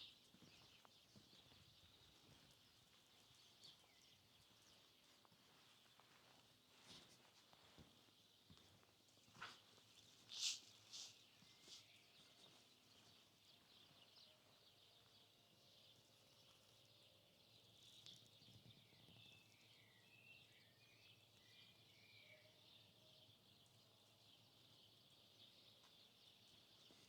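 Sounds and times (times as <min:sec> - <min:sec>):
faint bird chirps: 0:07.6 - 0:27.0.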